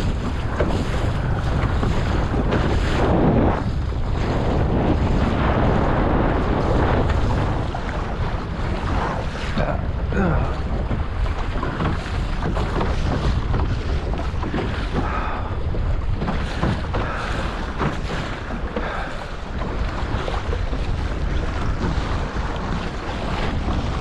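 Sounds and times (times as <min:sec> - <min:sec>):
water slapping against boat hull: 0:00.0 - 0:24.0
wind buffeting microphone: 0:00.0 - 0:24.0.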